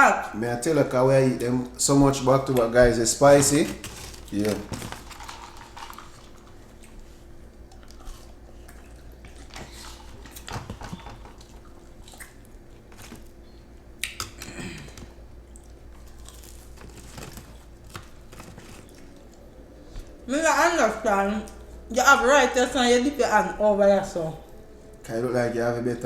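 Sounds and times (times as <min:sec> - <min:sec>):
people biting and chewing food: 0:03.3 - 0:20.3
rustling: 0:15.9 - 0:20.3.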